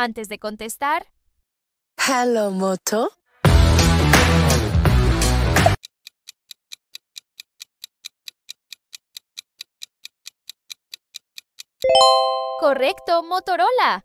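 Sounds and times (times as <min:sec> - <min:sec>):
clock-like ticking: 0:05.8 - 0:11.9.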